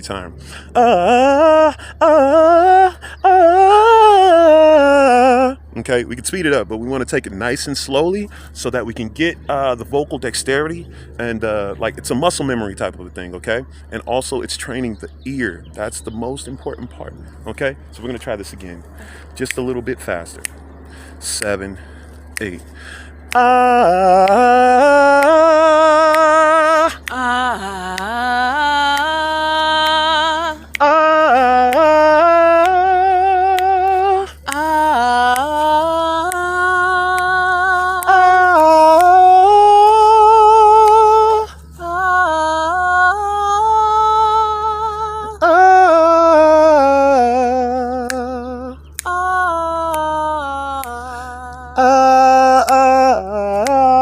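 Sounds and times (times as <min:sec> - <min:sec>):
person singing vocal warm-up: 0:00.0 - 0:06.0, 0:17.2 - 0:54.0
person breathing: 0:00.3 - 0:00.8, 0:01.7 - 0:02.0, 0:02.9 - 0:03.3, 0:08.3 - 0:08.6, 0:10.9 - 0:11.2, 0:18.9 - 0:19.4, 0:20.8 - 0:23.3.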